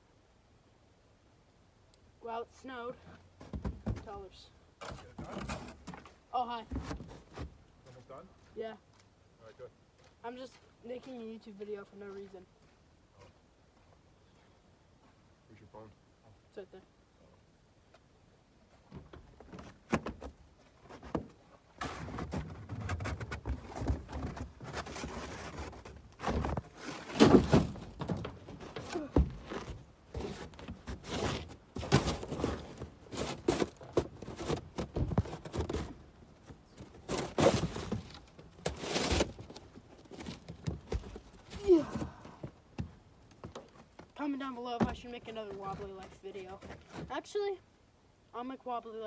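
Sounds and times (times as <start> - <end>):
scraping and shuffling: 3.1 - 9.1, 18.0 - 47.6
thuds and knocks: 3.4 - 6.0, 18.9 - 44.1, 44.8 - 47.1.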